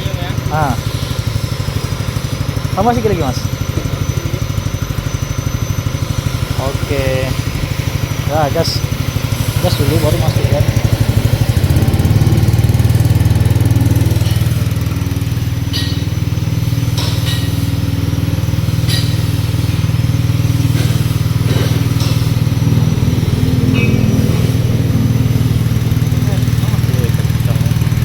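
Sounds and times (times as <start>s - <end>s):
small engine running: 0.0s - 28.0s.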